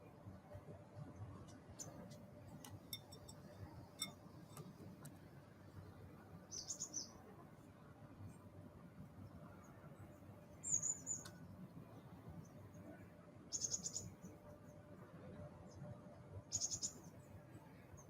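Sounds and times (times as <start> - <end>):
bird chirping: 6.5 - 7.2, 10.6 - 11.4, 13.5 - 14.3, 16.5 - 17.2.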